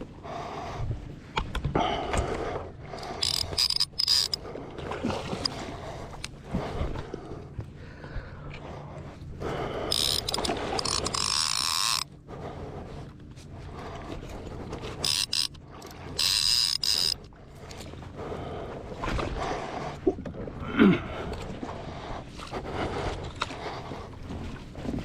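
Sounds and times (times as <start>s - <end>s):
fishing reel ratcheting: 3.0s - 4.4s, 9.8s - 12.1s, 14.9s - 17.3s.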